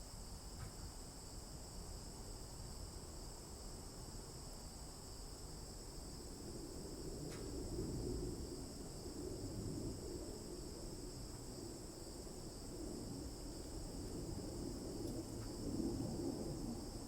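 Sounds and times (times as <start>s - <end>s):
low rustle and rumble: 6.2s - 17.0s.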